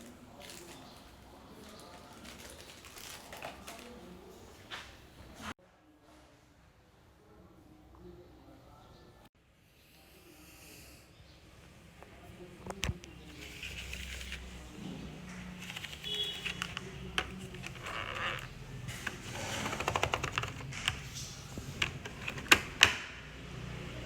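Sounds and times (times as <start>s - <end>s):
art supplies rustling: 0.0s - 5.6s, 12.1s - 23.1s.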